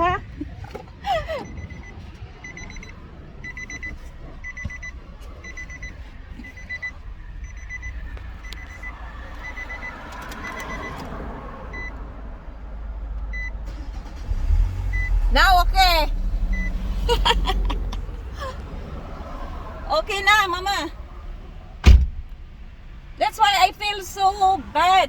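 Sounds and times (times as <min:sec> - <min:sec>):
low vehicle engine rumble: 0:00.0 - 0:25.0
electronic warning beep: 0:01.4 - 0:11.0.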